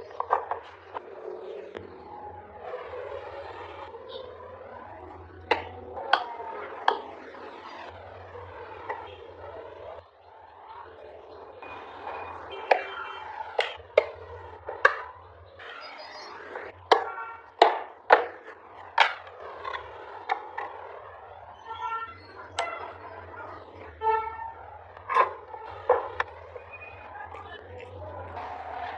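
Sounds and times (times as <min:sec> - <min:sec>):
hand tools knocking on wood: 0:16.9 - 0:18.3.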